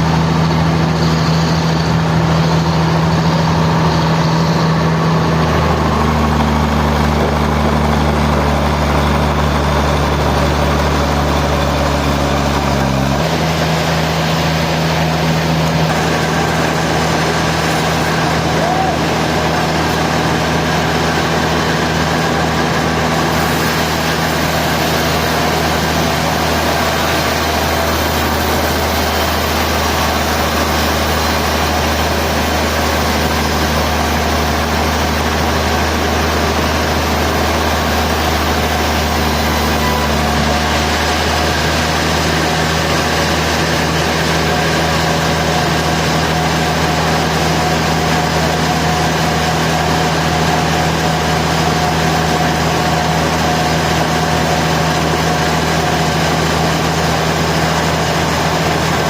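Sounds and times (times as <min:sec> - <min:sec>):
sawmill machinery whirring: 0:00.0 - 0:59.0.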